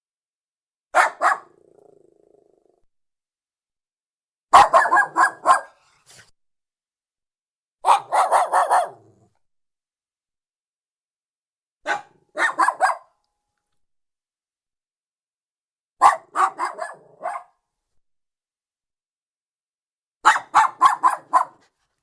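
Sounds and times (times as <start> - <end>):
dog barking: 0.9 - 1.7, 4.5 - 6.3, 7.8 - 9.3, 11.8 - 13.2, 16.0 - 17.6, 20.2 - 21.8
dog growling: 1.5 - 2.9.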